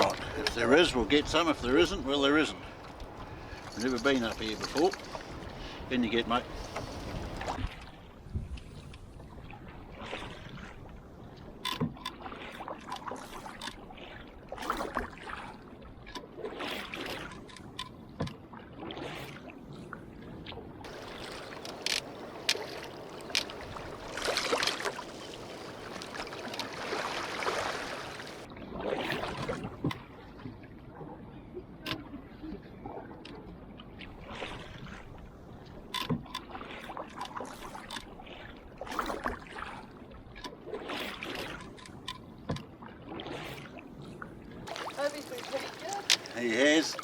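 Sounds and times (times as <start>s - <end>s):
paddle strokes splashing water: 0.0s - 8.1s, 20.9s - 30.1s, 36.4s - 41.9s, 44.7s - 47.0s.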